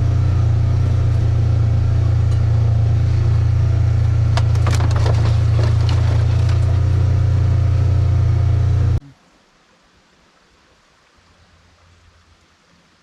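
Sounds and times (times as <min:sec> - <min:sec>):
loud steady low hum: 0:00.0 - 0:09.0.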